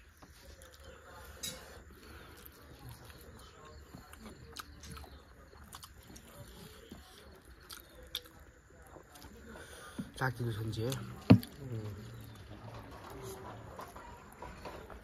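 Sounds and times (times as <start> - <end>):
chewing and lip smacks: 0.1 - 9.6.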